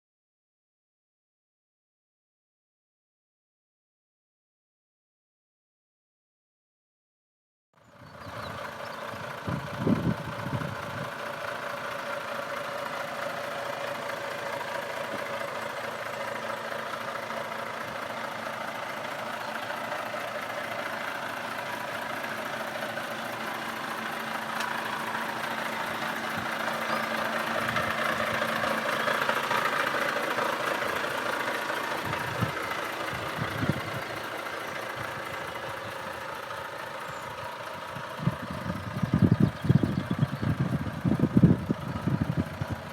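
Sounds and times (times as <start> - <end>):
diesel truck engine idling: 7.8 - 42.9.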